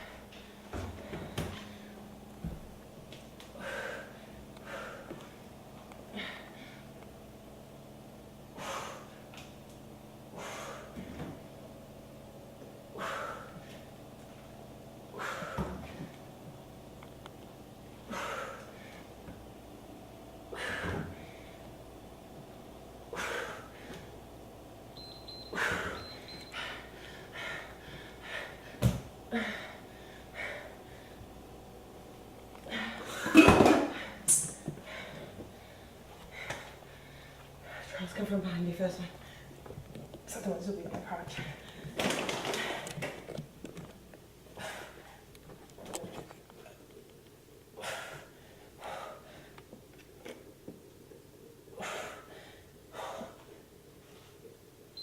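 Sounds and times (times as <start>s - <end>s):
person breathing hard: 3.5s - 5.5s, 25.5s - 31.3s, 47.8s - 49.6s.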